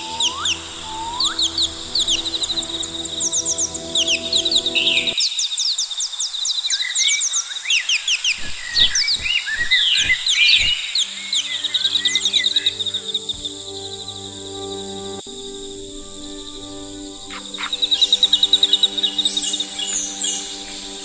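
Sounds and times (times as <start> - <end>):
soft background music pad: 0.0 - 5.2, 8.2 - 21.0
steady high buzz: 0.0 - 5.2, 8.2 - 21.0
small birds chirping: 0.0 - 21.0
soft low thuds: 8.4 - 10.8.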